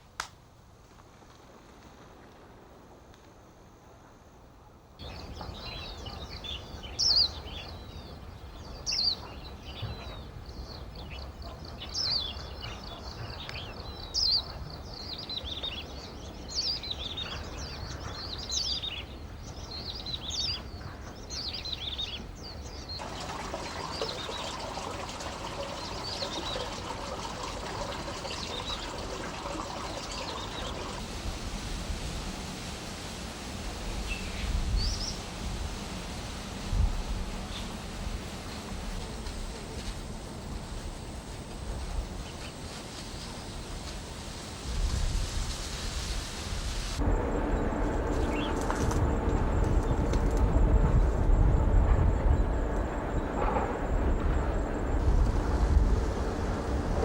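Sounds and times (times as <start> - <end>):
small birds chirping: 5.0 - 23.0
running water: 23.0 - 34.4
low rumble: 47.0 - 57.0.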